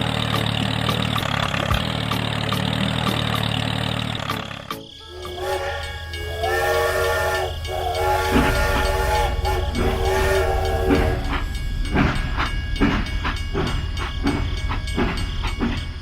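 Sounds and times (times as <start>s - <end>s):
train wheels clattering: 0.0s - 16.0s
train horn chord: 5.0s - 12.4s
low rumble: 5.1s - 16.0s.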